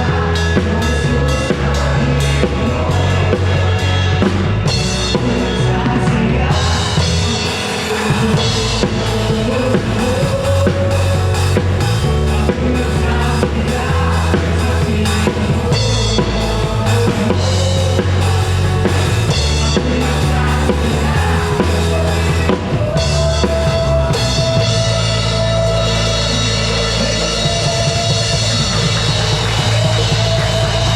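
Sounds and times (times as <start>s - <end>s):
drum kit beat: 0.0s - 30.9s
live band playing: 0.0s - 30.9s.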